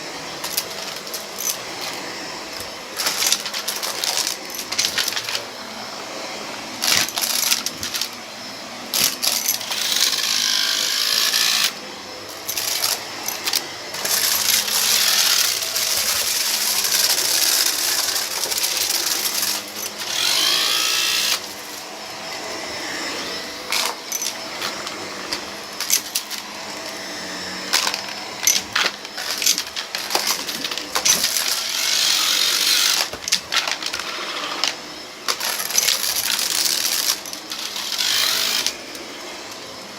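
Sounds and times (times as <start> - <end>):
vacuum cleaner running: 0.0 - 39.9
debris clicking and rattling: 2.6 - 5.4, 27.7 - 38.7.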